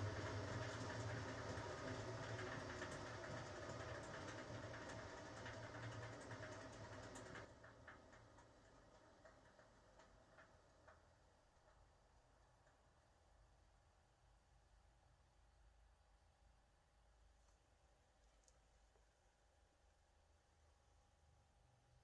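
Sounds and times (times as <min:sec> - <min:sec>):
washing machine hum: 0:00.0 - 0:13.1.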